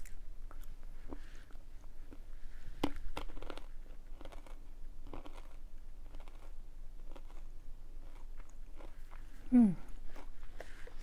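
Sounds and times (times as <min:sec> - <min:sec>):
crunchy snacks being chewed: 0:02.8 - 0:09.3.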